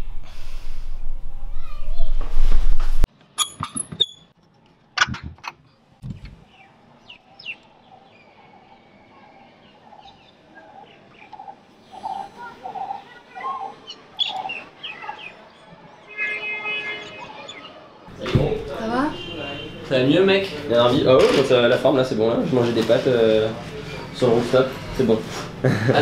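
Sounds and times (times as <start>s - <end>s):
birds chirping and calling: 6.0s - 17.9s.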